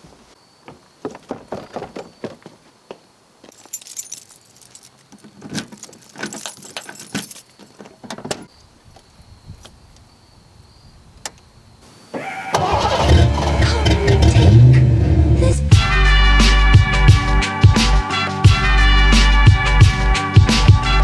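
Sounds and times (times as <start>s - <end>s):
car keys jangling: 3.5s - 7.9s.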